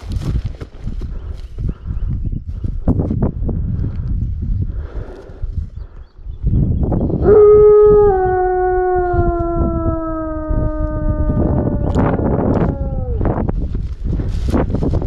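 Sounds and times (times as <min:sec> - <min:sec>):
dog howling: 0:07.2 - 0:13.4.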